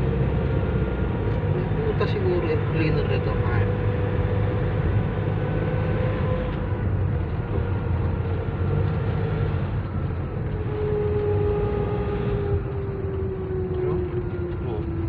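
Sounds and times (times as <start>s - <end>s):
van road and engine rumble: 0.0s - 15.0s.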